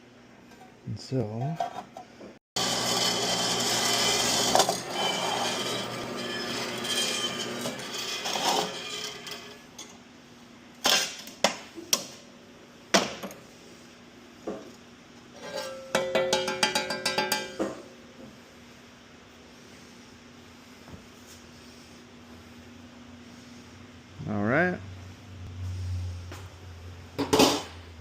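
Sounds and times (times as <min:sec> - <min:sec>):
metal tubing being cut: 0:02.6 - 0:09.6.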